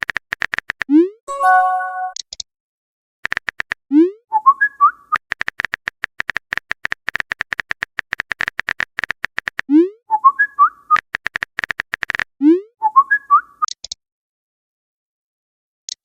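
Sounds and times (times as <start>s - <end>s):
keyboard typing clicks: 0.0s - 2.4s, 3.2s - 3.8s, 5.1s - 9.7s, 10.9s - 12.3s
message notification jingle: 1.3s - 2.2s.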